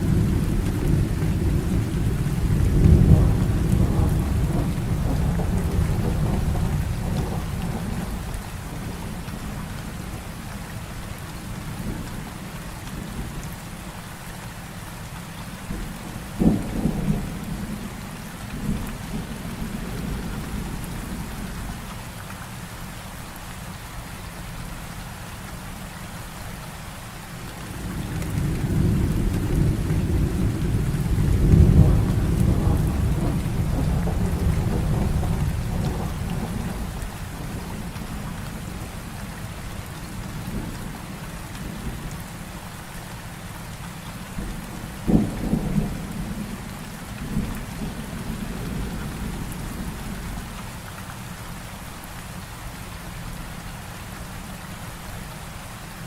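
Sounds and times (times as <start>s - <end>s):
thunder rumbling: 0.0s - 9.6s, 27.4s - 39.5s, 44.4s - 50.6s
heavy rain: 0.0s - 56.0s
sharp thunderclap: 27.6s - 37.9s, 45.0s - 46.5s.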